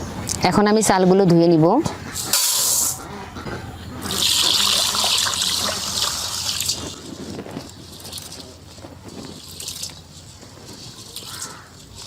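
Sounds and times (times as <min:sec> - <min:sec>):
water pouring over rice: 0:04.1 - 0:07.0.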